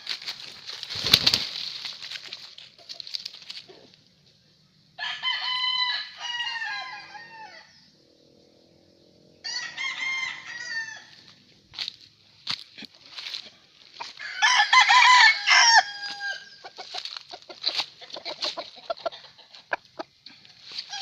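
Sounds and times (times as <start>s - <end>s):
roosters crowing: 5.0s - 7.9s, 9.3s - 11.4s, 14.0s - 19.3s, 20.7s - 21.0s.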